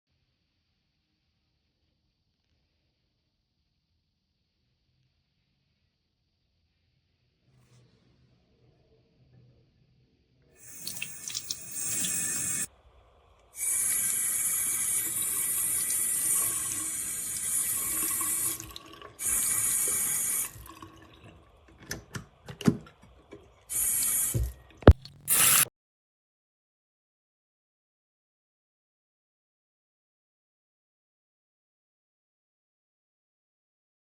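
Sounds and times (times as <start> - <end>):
water running from faucet: 10.6 - 12.7, 13.6 - 21.8, 23.7 - 25.7.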